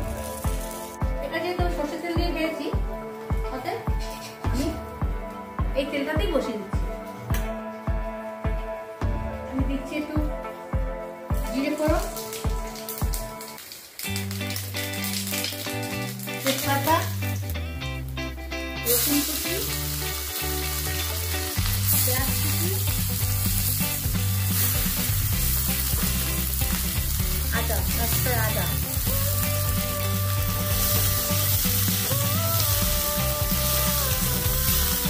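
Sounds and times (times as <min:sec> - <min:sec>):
onions sizzling in hot oil: 0:00.0 - 0:01.0, 0:11.4 - 0:35.0
background music: 0:00.0 - 0:35.0.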